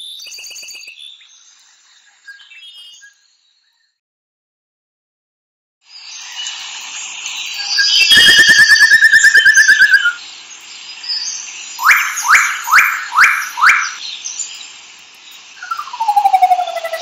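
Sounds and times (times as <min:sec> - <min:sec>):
bird trill: 0:07.8 - 0:10.2, 0:11.8 - 0:14.0, 0:15.6 - 0:17.0
long pulsed falling bird call: 0:07.8 - 0:10.2, 0:11.8 - 0:14.0, 0:15.6 - 0:17.0
quick downslurred bird notes: 0:11.8 - 0:14.0.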